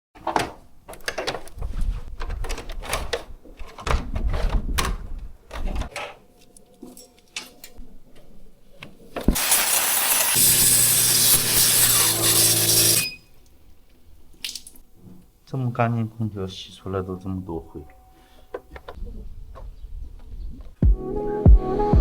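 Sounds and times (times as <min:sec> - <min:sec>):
cleaning machine hissing: 0:09.3 - 0:13.2.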